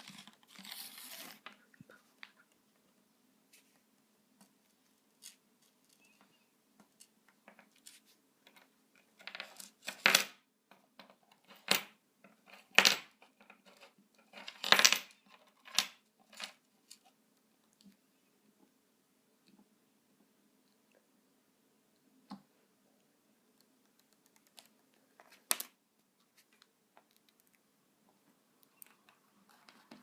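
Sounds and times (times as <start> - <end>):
small objects clinking on a tabletop: 11.0 - 16.6.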